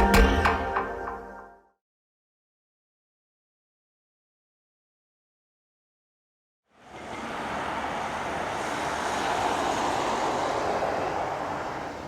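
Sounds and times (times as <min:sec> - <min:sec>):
jet engines rushing: 0:06.9 - 0:12.0.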